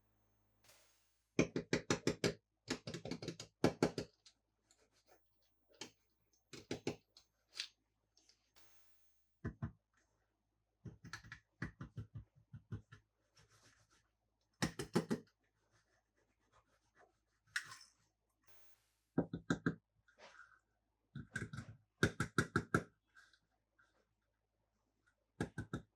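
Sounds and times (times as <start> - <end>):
plastic toys clicking and tapping: 1.4 - 4.3.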